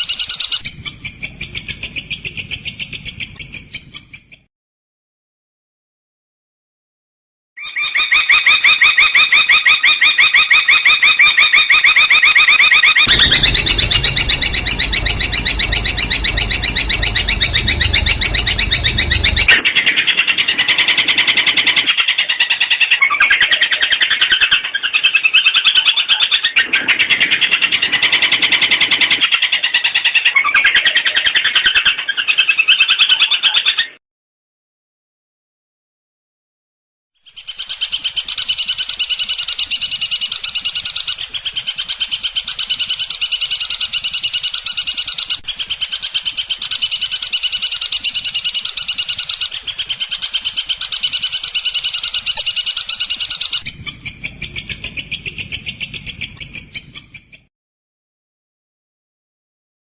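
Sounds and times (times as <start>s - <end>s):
bird chattering song: 0.0s - 4.5s, 12.7s - 19.6s, 37.3s - 57.5s.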